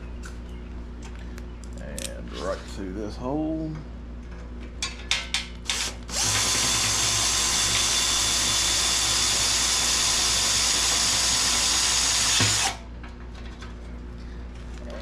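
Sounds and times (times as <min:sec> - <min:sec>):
power drill driving screw: 0:05.7 - 0:12.8.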